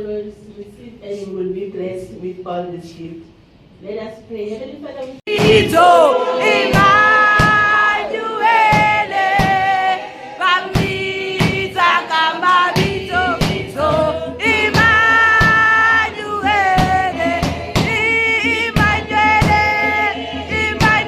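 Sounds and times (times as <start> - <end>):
voices singing gospel: 5.2 - 21.0
steady beat: 5.3 - 21.0.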